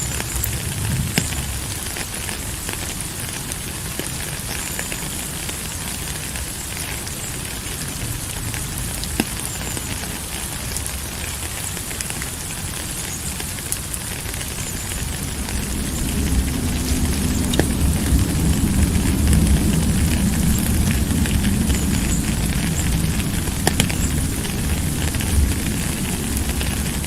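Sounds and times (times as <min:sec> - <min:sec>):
low rumble: 0:00.0 - 0:03.0, 0:14.9 - 0:27.0
rain falling: 0:00.0 - 0:27.0
sharp raindrop ticks: 0:00.0 - 0:27.0.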